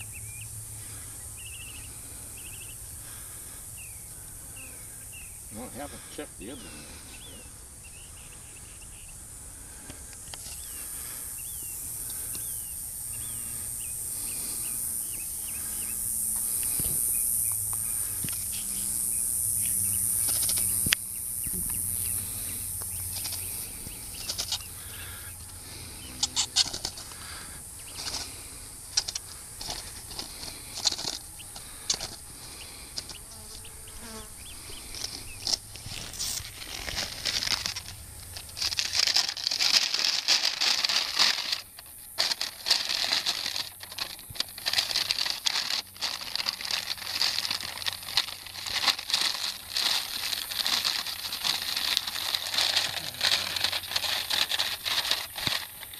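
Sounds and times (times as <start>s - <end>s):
high steady insect buzz: 0.0s - 55.9s
small birds chirping: 0.0s - 55.9s
rustling and fluttering: 21.6s - 32.2s, 34.8s - 55.9s.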